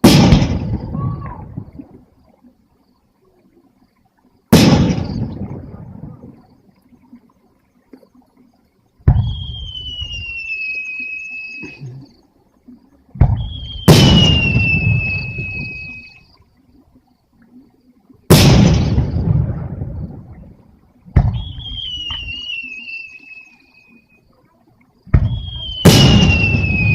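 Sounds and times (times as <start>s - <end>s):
fireworks booming: 0.0s - 1.6s, 4.5s - 6.4s, 9.0s - 10.4s, 13.2s - 16.0s, 18.3s - 20.5s, 21.1s - 22.7s, 25.1s - 26.9s
high whistling tone: 9.2s - 12.1s, 13.3s - 16.3s, 21.3s - 24.2s, 25.2s - 26.9s.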